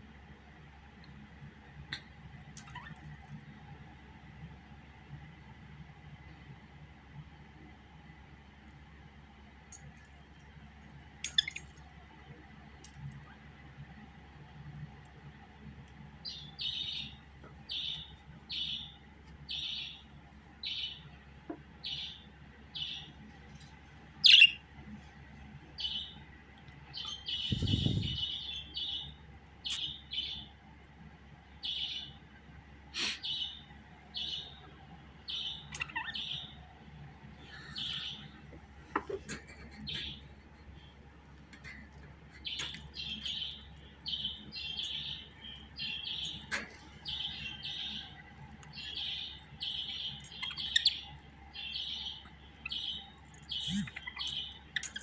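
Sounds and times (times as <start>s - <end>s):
budgerigar chirping: 24.2s - 24.6s, 35.3s - 36.6s, 42.5s - 55.0s.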